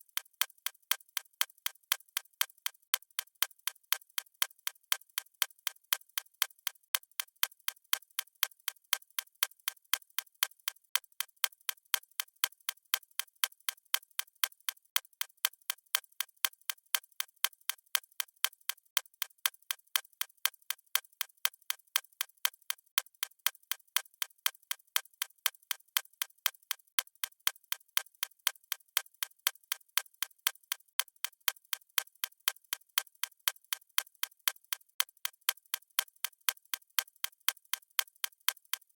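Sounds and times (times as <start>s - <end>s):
clock ticking: 31.0s - 38.9s.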